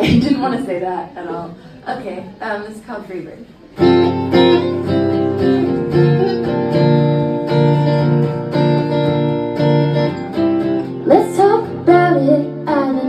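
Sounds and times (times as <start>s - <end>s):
guitar strumming chords: 3.8s - 13.0s.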